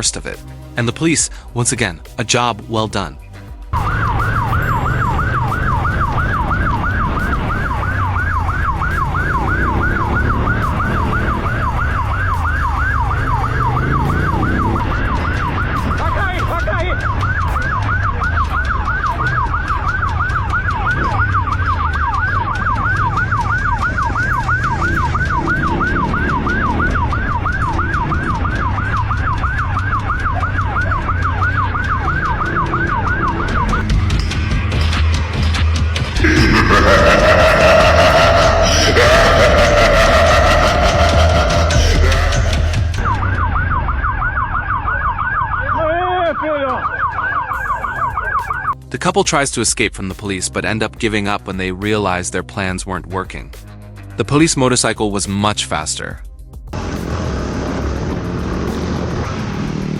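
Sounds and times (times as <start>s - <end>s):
police siren yelping: 3.7s - 33.9s, 36.2s - 48.8s.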